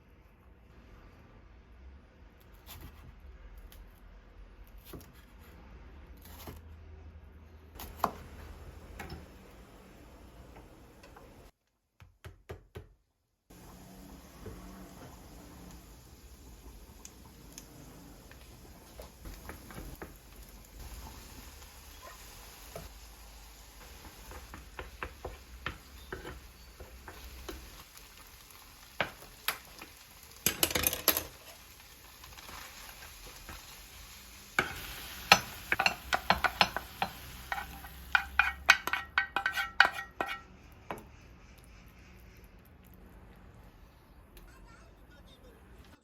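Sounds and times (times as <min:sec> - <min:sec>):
utensil knocking and scraping pan: 0:23.9 - 0:27.7, 0:34.6 - 0:41.1
dishes clinking: 0:34.6 - 0:40.4.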